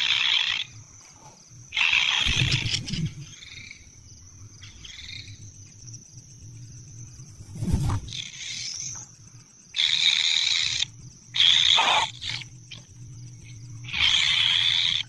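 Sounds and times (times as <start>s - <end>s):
nestlings hissing begging calls: 0.0s - 0.8s, 1.7s - 3.8s, 9.8s - 12.5s, 13.8s - 15.0s.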